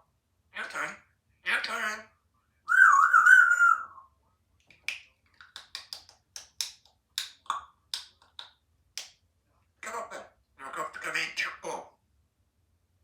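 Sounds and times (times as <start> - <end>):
parrot wavering whistle: 2.7 - 4.1
parrot sharp clicks: 4.8 - 9.1.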